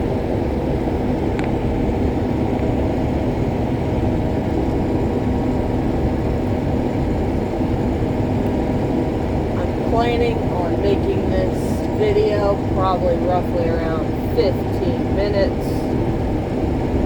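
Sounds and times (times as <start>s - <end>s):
combine harvester drone: 0.0s - 17.0s.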